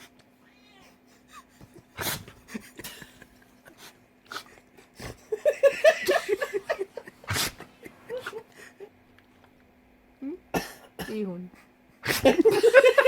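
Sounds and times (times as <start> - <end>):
dog sneezing: 2.0 - 2.4, 7.2 - 7.7, 12.0 - 12.4.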